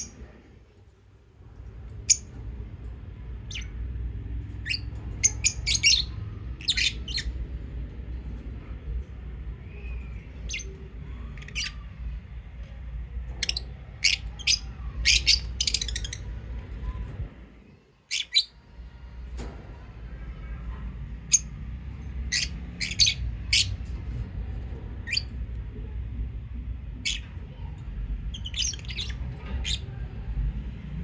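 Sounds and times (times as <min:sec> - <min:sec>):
steady low hum: 0:00.0 - 0:31.0
lovebirds chirping: 0:13.3 - 0:17.0.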